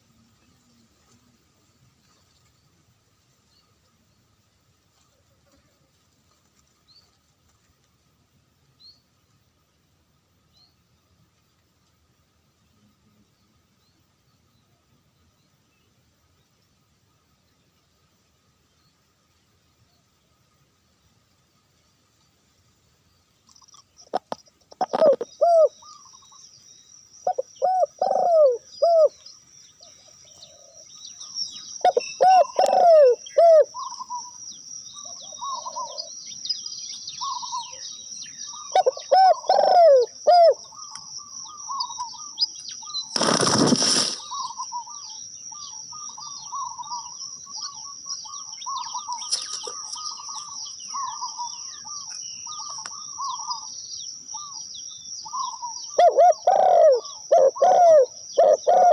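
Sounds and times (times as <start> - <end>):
small chirping calls: 23.2 - 58.9
dove cooing: 24.0 - 26.2, 27.3 - 29.2, 29.8 - 30.9, 31.8 - 34.4, 35.0 - 36.2, 38.6 - 40.9, 55.3 - 58.9.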